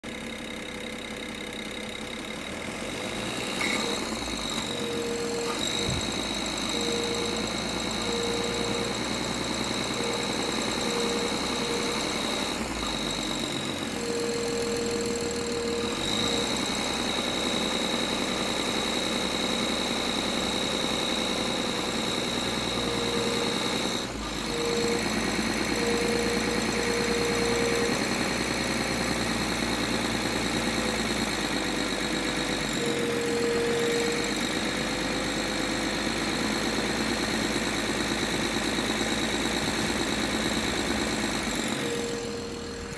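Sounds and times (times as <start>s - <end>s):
car engine running with rattle: 0.0s - 42.9s.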